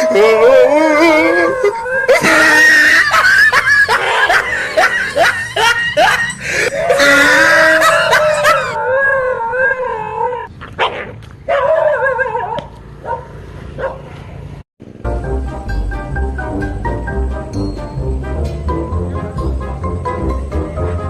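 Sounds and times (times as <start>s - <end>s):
dog howling: 0.0s - 3.1s, 5.6s - 10.5s
dog barking and yelping: 3.7s - 14.1s.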